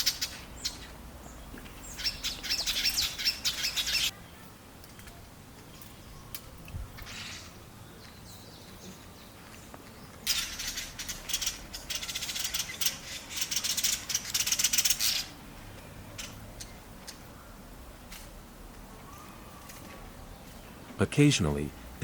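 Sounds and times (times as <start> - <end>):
buzzy bird chatter: 0.0 - 0.9, 1.8 - 4.1, 10.2 - 15.4, 16.1 - 17.3.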